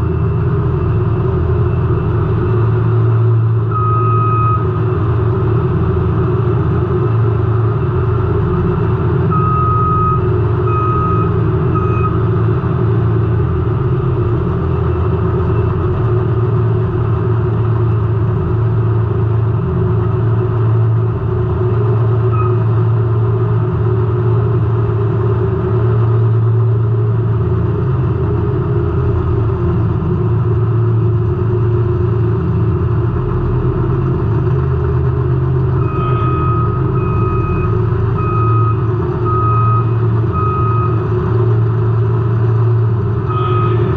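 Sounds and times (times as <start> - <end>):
high electronic beep: 35.8 - 41.0, 43.3 - 43.9.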